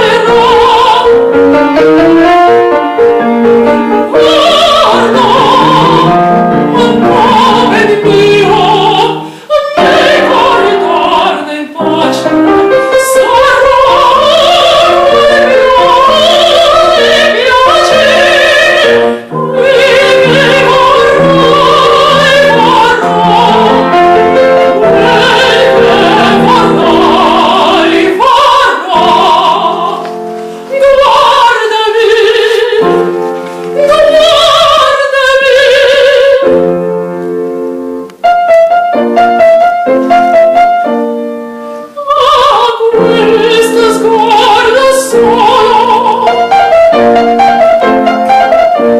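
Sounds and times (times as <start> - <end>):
operatic singing with vibrato: 0.0 - 36.7, 41.8 - 48.9
piano accompaniment: 0.0 - 48.9
singer breathing: 9.2 - 9.5, 30.3 - 30.7.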